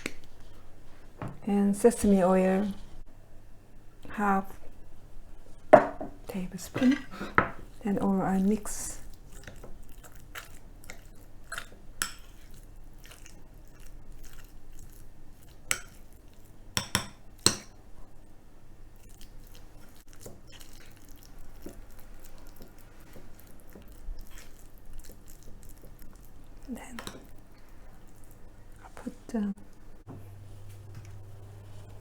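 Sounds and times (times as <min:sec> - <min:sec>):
thick sauce being stirred: 0:08.6 - 0:17.6, 0:19.0 - 0:28.9.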